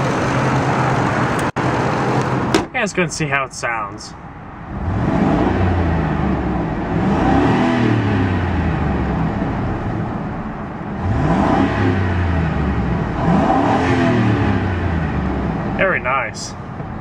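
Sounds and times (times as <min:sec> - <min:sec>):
engine revving: 0:04.6 - 0:15.9.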